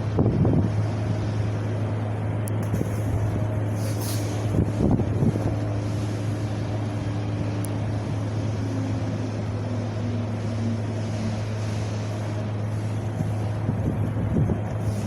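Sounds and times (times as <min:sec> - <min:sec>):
wind gusts buffeting microphone: 0:00.0 - 0:08.6, 0:12.3 - 0:15.0
wind rumbling: 0:00.0 - 0:11.0, 0:12.2 - 0:15.0.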